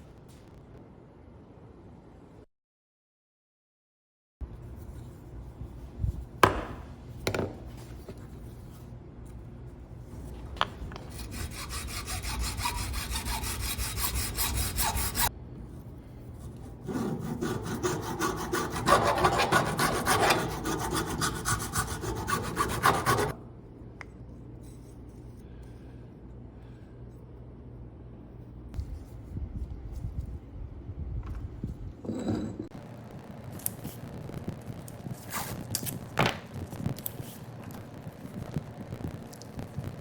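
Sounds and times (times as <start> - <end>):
fast rubbing strokes on workpiece: 11.1 - 15.3, 16.8 - 23.3.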